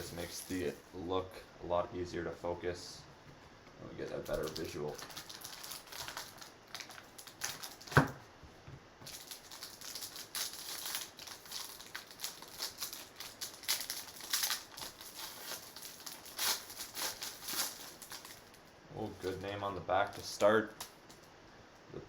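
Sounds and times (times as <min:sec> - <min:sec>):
card packaging crinkling: 0:00.0 - 0:01.0, 0:04.0 - 0:08.2, 0:09.0 - 0:21.2.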